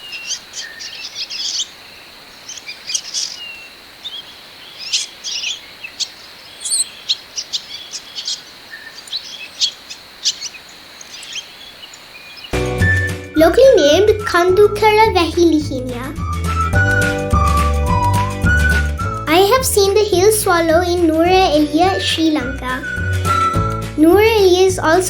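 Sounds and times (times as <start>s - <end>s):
swallows twittering: 0.0s - 12.6s.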